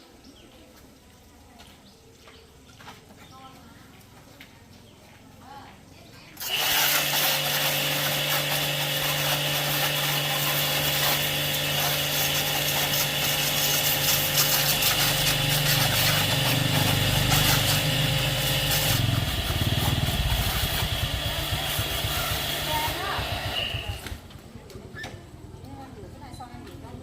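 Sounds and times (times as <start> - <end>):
pressure washer motor running: 6.4 - 24.3.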